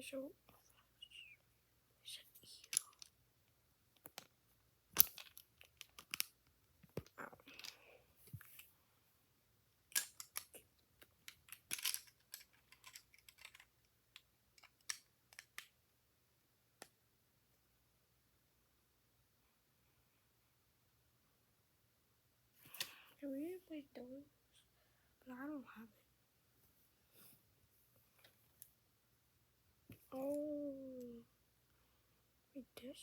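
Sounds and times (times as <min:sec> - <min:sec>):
plastic bricks clicking and rattling: 0:02.6 - 0:03.1, 0:05.0 - 0:07.8, 0:09.9 - 0:15.8.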